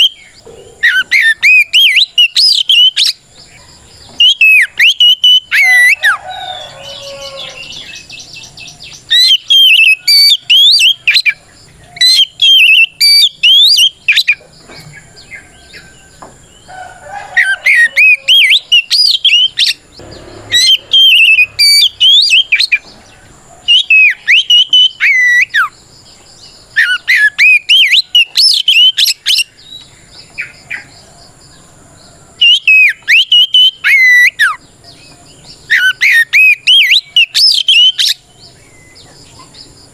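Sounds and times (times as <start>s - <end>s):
bird singing whistled phrases: 0.0s - 3.2s, 4.2s - 6.2s, 6.9s - 11.4s, 12.0s - 14.4s, 17.4s - 19.8s, 20.5s - 22.8s, 23.7s - 25.8s, 26.8s - 29.8s, 32.4s - 34.6s, 35.7s - 38.2s.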